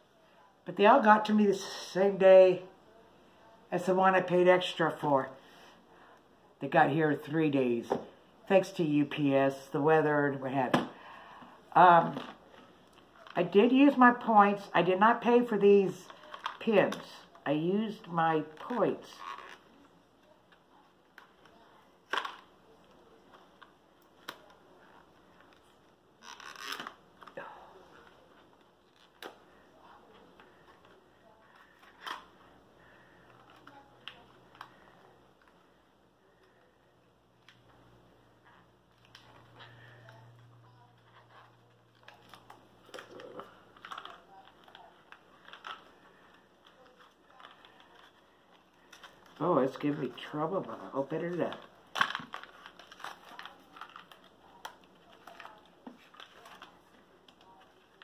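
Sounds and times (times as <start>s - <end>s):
hands handling package: 51.0s - 58.0s.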